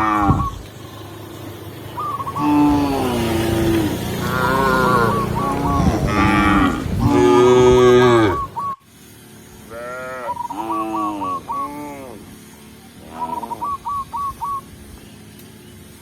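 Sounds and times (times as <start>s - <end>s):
cattle mooing: 0.0s - 0.6s, 2.4s - 8.6s, 9.7s - 12.3s.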